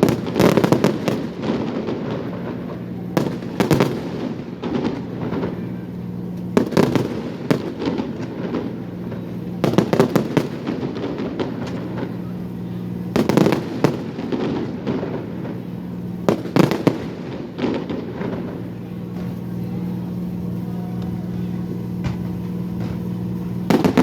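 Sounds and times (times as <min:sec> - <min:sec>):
firework crackling: 0:00.0 - 0:24.0
firework shells bursting: 0:00.0 - 0:24.0
steady low hum: 0:00.0 - 0:24.0.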